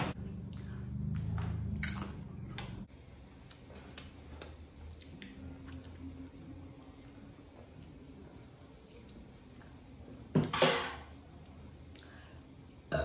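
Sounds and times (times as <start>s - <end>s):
low hum: 0.0s - 3.6s
wet chewing clicks and smacks: 0.5s - 2.8s, 3.4s - 6.1s.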